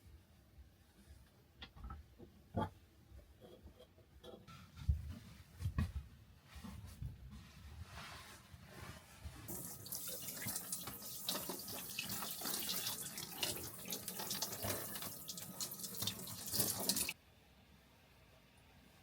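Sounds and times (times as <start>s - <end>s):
tap water running into sink: 9.5s - 17.2s.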